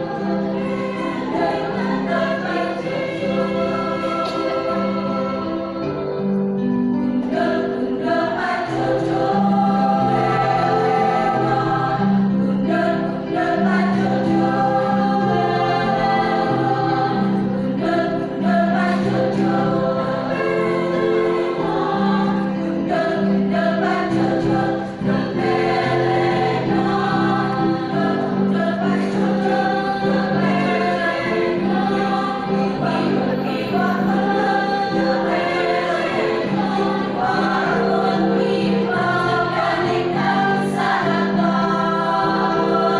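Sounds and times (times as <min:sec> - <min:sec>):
choir singing in harmony: 0:00.0 - 0:42.9.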